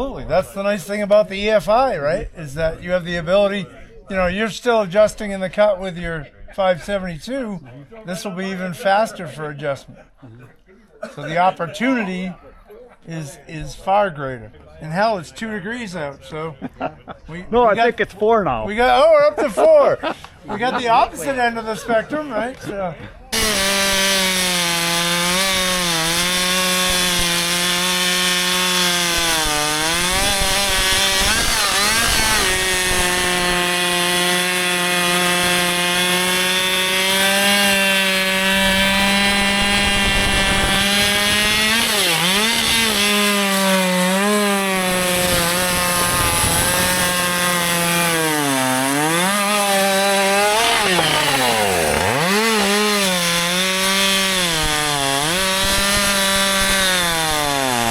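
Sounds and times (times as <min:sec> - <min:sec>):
chainsaw cutting wood: 0:23.3 - 0:57.9.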